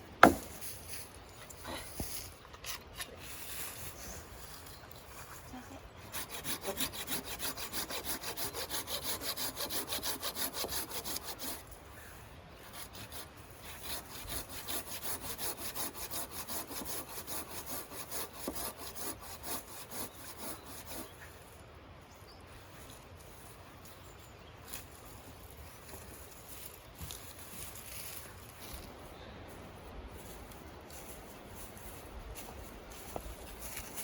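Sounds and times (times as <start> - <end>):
hand saw cutting wood: 0.2 - 0.5, 6.0 - 11.7, 12.6 - 21.2.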